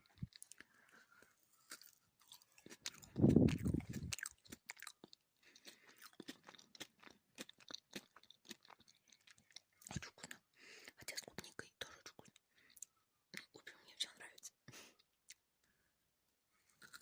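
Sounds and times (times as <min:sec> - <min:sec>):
chewing gummy candy: 0:00.0 - 0:13.7, 0:16.8 - 0:17.0
wet mouth clicks: 0:02.7 - 0:10.4.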